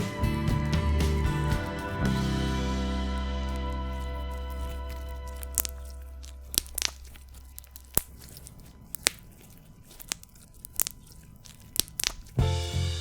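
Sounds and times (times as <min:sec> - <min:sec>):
slime clicks and pops: 0:04.6 - 0:12.4.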